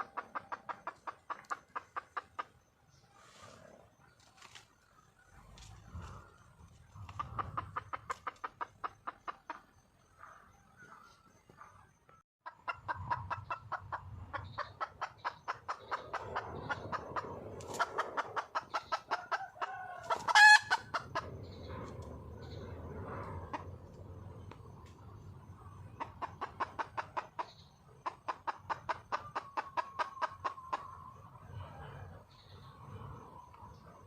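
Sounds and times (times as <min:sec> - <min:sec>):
hen clucking rapidly: 0:00.0 - 0:02.7, 0:05.8 - 0:10.2, 0:12.4 - 0:23.8, 0:25.5 - 0:31.2.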